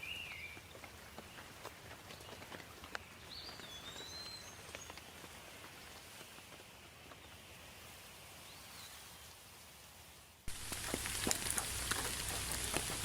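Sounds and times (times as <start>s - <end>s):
bird chirping: 0.0s - 5.2s
light rain hiss: 0.0s - 13.0s
water dripping: 10.5s - 13.0s.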